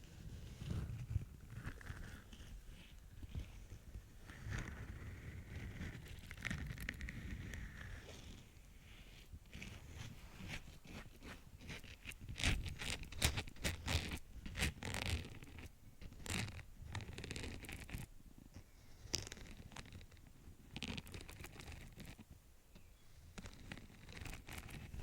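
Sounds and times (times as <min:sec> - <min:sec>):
scratching strokes: 0:00.1 - 0:18.1.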